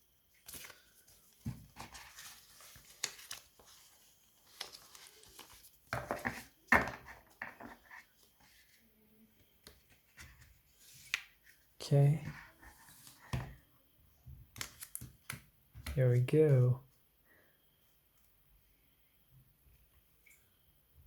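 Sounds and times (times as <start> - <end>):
packaging paper rustling: 0.4 - 8.8.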